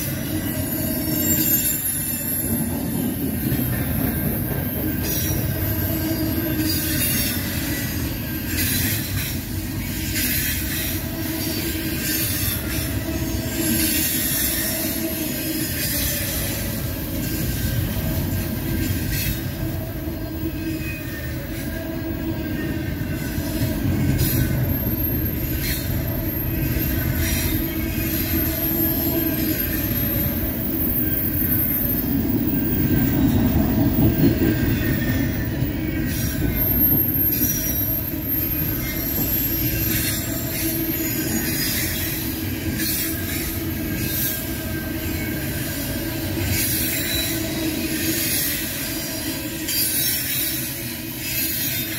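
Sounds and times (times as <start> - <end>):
high wheel squeal: 0.0 - 51.9
train wheels rumbling on rail: 0.0 - 51.9.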